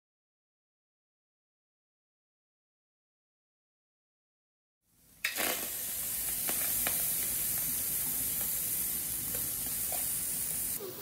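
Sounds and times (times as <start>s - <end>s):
fish sizzling in frying pan: 4.9s - 10.8s.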